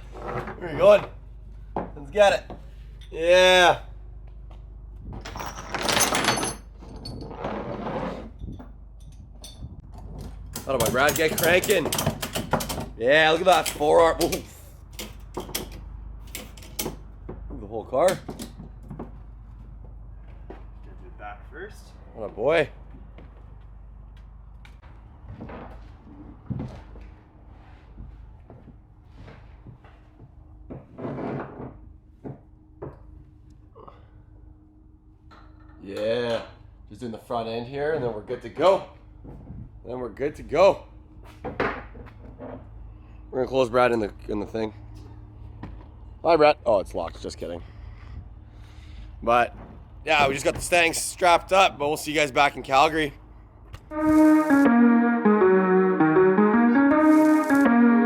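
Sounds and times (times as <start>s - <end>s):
ratchet straps clunking and rattling: 5.0s - 17.5s.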